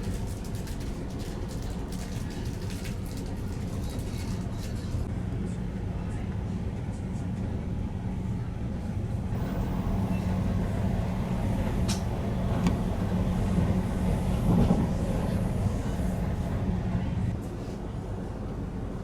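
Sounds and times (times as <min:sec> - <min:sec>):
train rumbling: 0:07.2 - 0:19.0.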